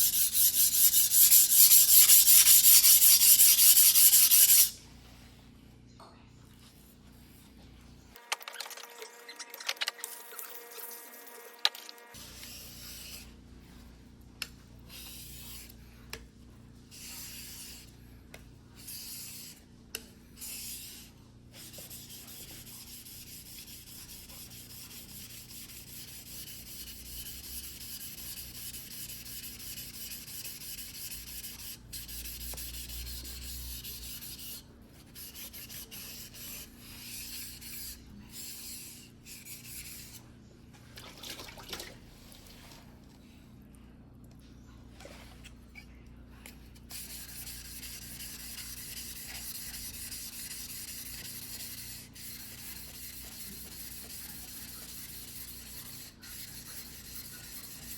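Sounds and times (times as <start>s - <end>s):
knife rubbing on wet whetstone: 0.0s - 4.7s.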